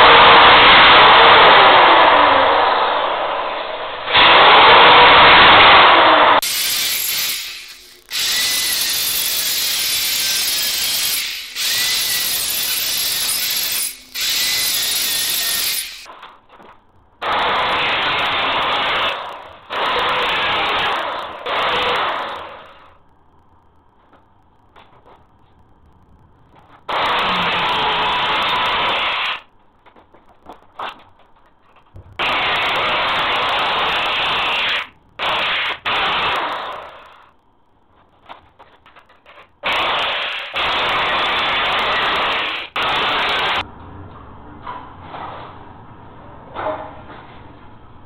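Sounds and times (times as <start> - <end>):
electric power tool running: 6.4 - 16.1.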